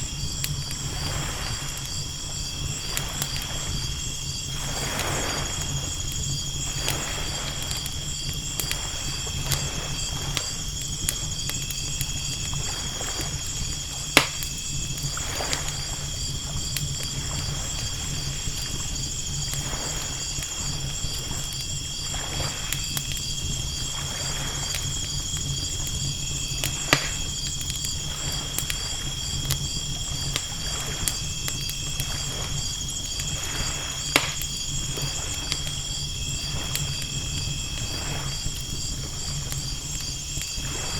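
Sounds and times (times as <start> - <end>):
campfire crackling and popping: 0.0 - 40.9
night insects chirring: 0.0 - 40.9
ocean waves washing in: 0.1 - 10.6.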